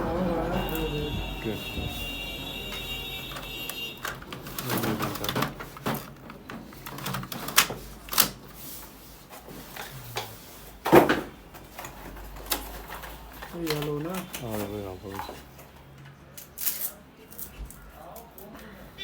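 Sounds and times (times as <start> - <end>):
plastic clicks and knocks: 3.4 - 8.3.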